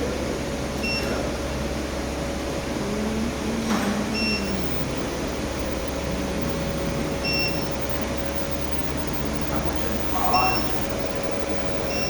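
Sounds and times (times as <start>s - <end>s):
electrical hum: 0.0s - 12.0s
short high electronic beeps: 4.2s - 12.0s.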